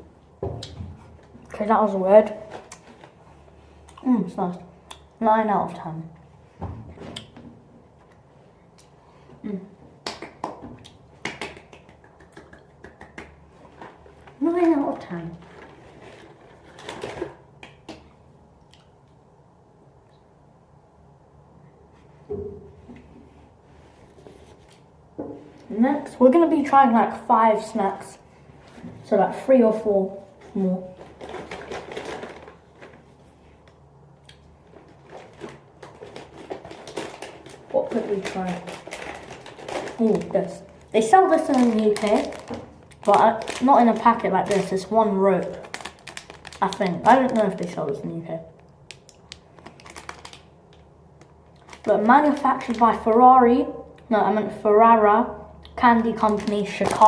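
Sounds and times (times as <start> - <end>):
snack packets rustling: 13.6 - 18.1, 30.4 - 33.7, 34.3 - 53.2, 55.9 - 57.0.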